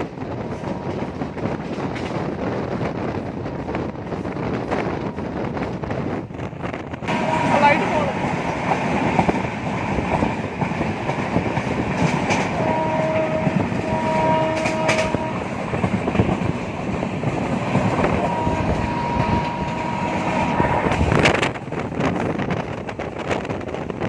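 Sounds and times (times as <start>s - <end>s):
train wheels rumbling on track: 0.0s - 24.0s
two-note train horn: 7.1s - 8.0s, 12.6s - 15.6s, 18.1s - 20.9s.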